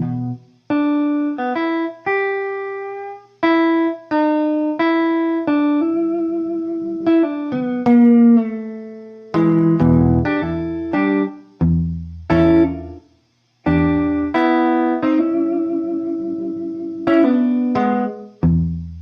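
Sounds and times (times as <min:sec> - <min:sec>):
blues guitar notes: 0:00.0 - 0:19.0.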